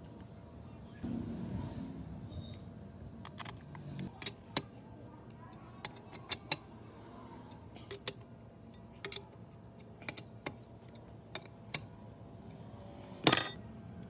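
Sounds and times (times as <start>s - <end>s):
low steady background noise: 0.0s - 14.0s
metal parts clicking and tapping: 3.2s - 4.7s, 5.8s - 6.6s, 7.8s - 12.6s, 13.2s - 13.6s.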